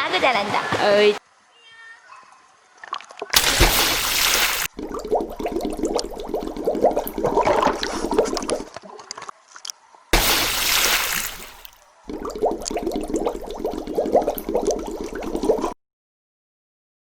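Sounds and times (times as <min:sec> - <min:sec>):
pool water splashing: 0:02.8 - 0:09.0, 0:10.2 - 0:15.8.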